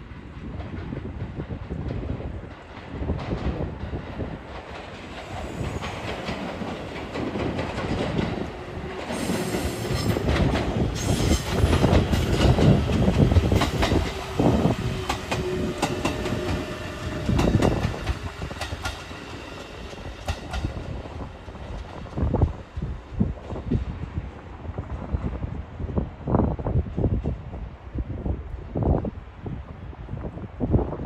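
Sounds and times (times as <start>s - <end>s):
train rumble: 0.0s - 31.0s
train wheels clacking over joints: 0.6s - 22.9s.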